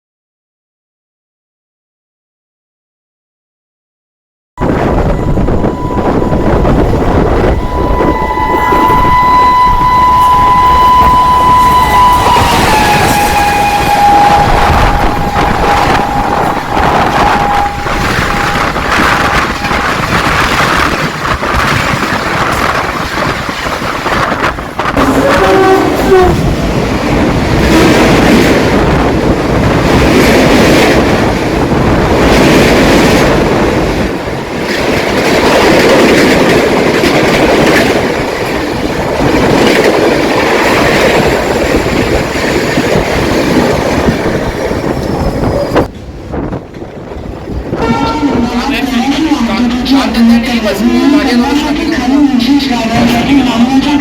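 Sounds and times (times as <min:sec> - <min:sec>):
locomotive horn: 0:05.2 - 0:20.9, 0:25.0 - 0:26.6, 0:47.7 - 0:50.3.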